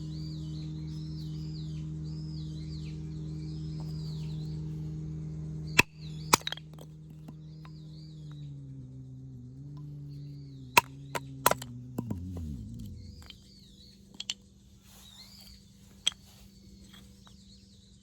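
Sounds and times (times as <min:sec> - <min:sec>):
low hum: 0:00.0 - 0:17.6
faint bird chirps: 0:12.5 - 0:18.0.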